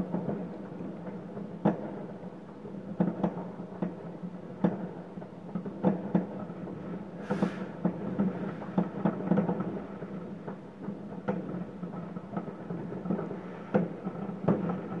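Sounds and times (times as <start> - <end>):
distant fireworks bangs: 5.6 - 15.0.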